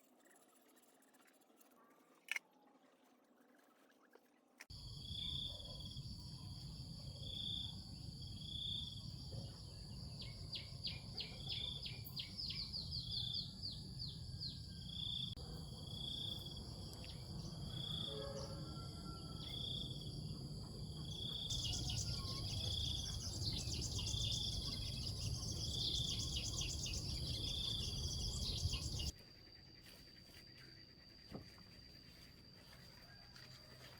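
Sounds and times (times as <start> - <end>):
insects whining: 4.8 - 29.1
rapid bird chirps: 21.2 - 29.1.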